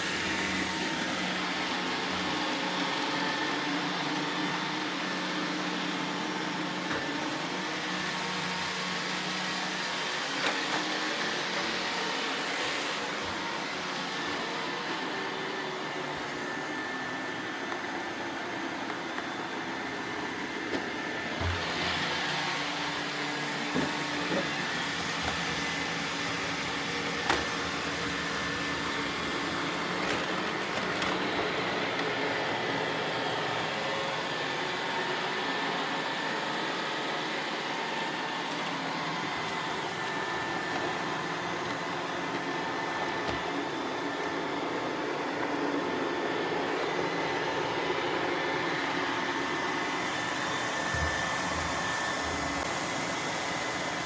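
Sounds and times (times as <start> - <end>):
robot vacuum whirring: 0.0 - 54.0.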